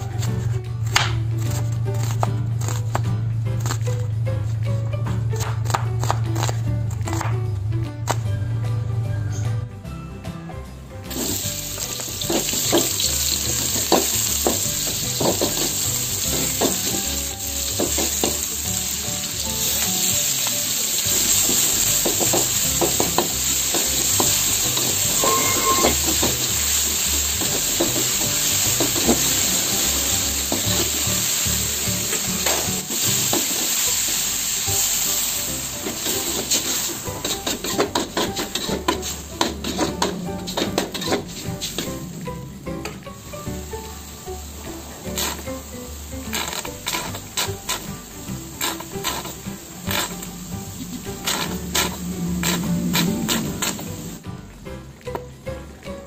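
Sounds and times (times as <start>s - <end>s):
spatula scraping a wok: 11.1s - 42.1s, 44.8s - 54.2s
onion sizzling in oil: 11.1s - 54.4s.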